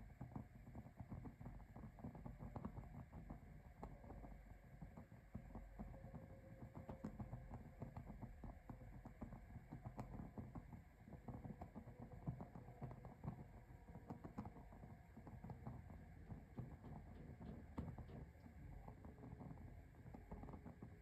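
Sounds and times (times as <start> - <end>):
low fire rumble: 7.5 - 21.0.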